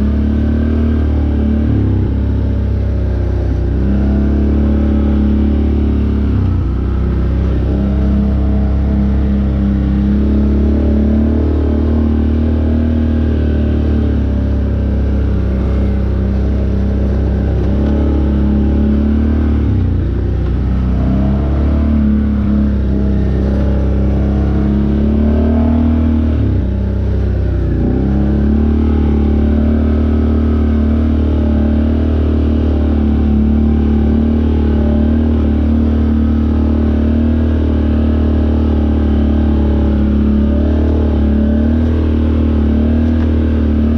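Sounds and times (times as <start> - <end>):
off-road vehicle engine running: 0.0 - 43.9.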